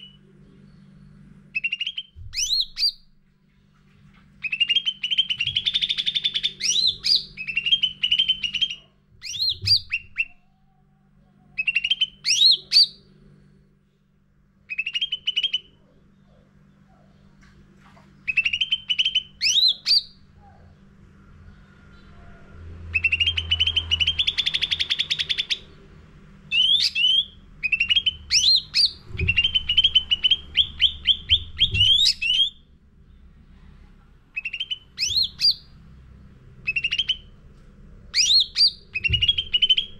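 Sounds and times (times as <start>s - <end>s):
low hum: 0.0s - 39.9s
songbird trilling and whistling: 1.6s - 3.0s, 4.4s - 10.5s, 11.6s - 13.0s, 14.7s - 16.4s, 18.3s - 20.2s, 22.9s - 25.7s, 26.5s - 32.6s, 34.4s - 35.8s, 36.6s - 37.3s, 38.1s - 39.9s.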